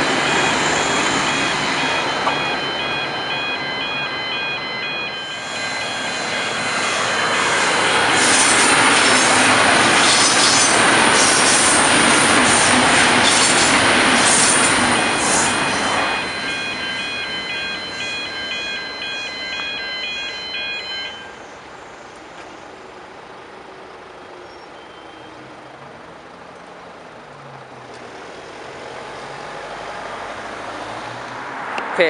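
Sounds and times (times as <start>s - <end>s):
electronic crossing bell ringing: 0.0s - 10.0s, 13.2s - 21.5s
high wheel squeals: 0.0s - 22.1s, 24.2s - 25.5s
train wheel and rail noise: 0.0s - 32.0s.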